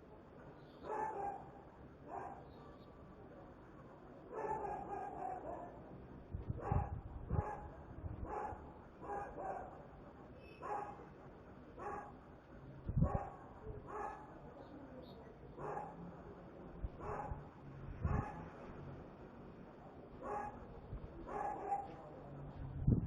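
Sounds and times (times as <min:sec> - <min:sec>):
dog barking: 0:00.8 - 0:02.5, 0:04.3 - 0:05.8, 0:06.6 - 0:09.8, 0:10.6 - 0:11.1, 0:11.8 - 0:12.2, 0:13.0 - 0:14.3, 0:15.6 - 0:16.0, 0:17.0 - 0:17.4, 0:18.0 - 0:18.5, 0:20.2 - 0:22.0.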